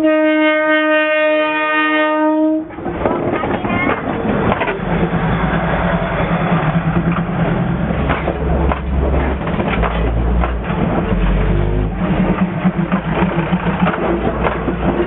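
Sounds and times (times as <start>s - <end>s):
diesel train engine humming: 0.0s - 15.0s
clanks and clicks: 2.8s - 5.0s, 6.5s - 11.3s, 11.9s - 15.0s.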